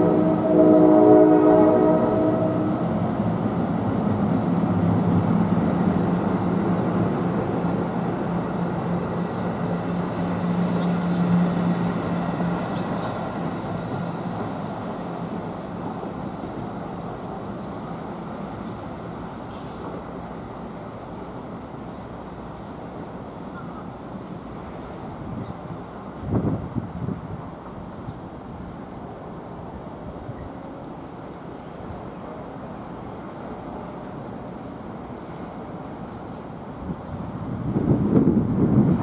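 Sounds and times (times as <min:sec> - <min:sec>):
train horn: 0:00.0 - 0:03.1
train rumbling on rails: 0:00.0 - 0:39.0
high wheel squeals: 0:10.5 - 0:11.6, 0:12.6 - 0:13.4.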